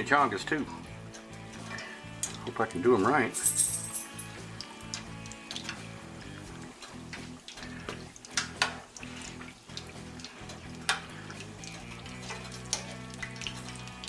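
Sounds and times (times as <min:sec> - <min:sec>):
background music: 0:00.0 - 0:14.0
food sizzling in hot oil: 0:04.1 - 0:14.0.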